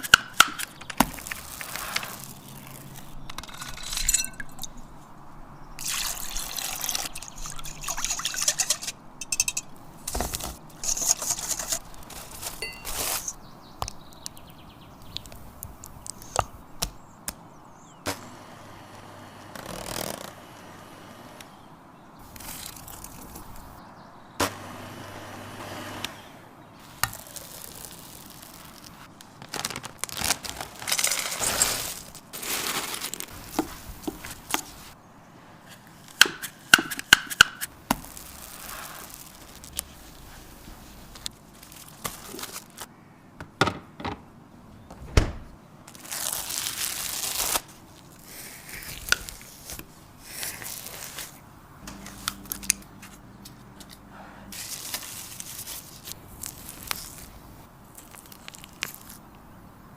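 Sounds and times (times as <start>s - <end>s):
paper crinkling and tearing: 0.0s - 3.8s, 10.1s - 13.4s, 19.5s - 20.4s, 22.2s - 23.8s, 26.8s - 35.0s, 37.9s - 42.9s, 45.9s - 59.4s.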